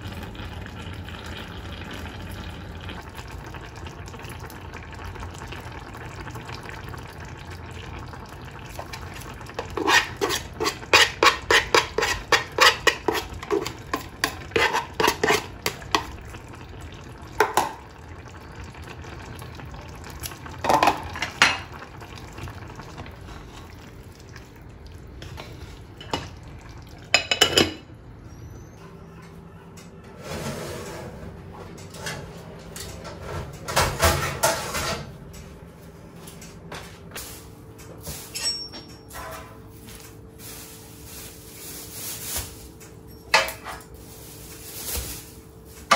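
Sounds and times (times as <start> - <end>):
dishware clattering: 27.2 - 27.9.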